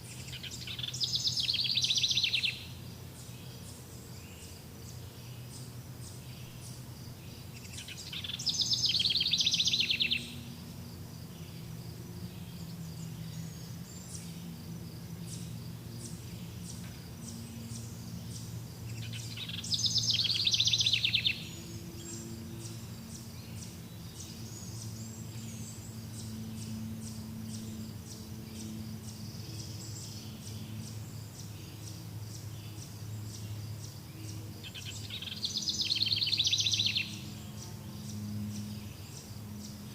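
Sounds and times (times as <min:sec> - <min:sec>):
faint high chirping: 0:00.0 - 0:39.9
low steady hum: 0:00.0 - 0:39.9
bird rapid trill: 0:17.3 - 0:26.3.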